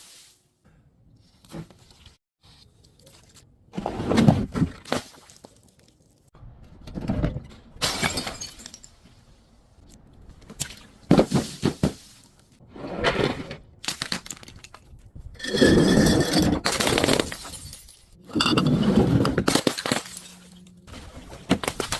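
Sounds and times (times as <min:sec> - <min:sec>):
glass bottles breaking: 0:07.8 - 0:09.0, 0:15.8 - 0:18.6, 0:19.4 - 0:20.6.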